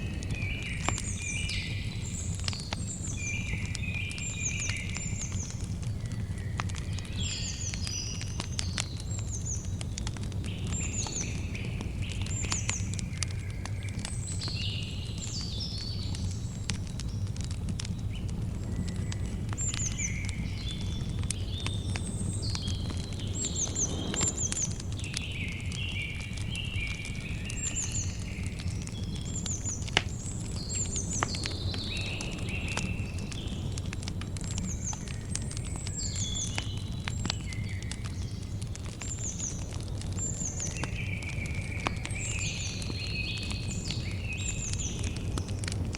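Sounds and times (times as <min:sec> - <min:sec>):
small birds chirping and whistling: 0:00.0 - 0:45.7
campfire crackling and popping: 0:00.0 - 0:45.9
steady low rumble: 0:20.2 - 0:26.5.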